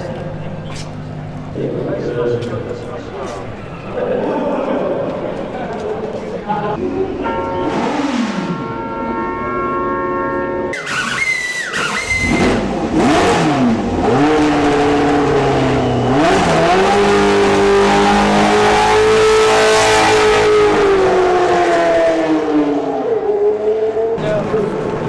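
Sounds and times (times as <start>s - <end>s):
racing car engine revving: 7.6s - 8.8s, 10.7s - 25.0s.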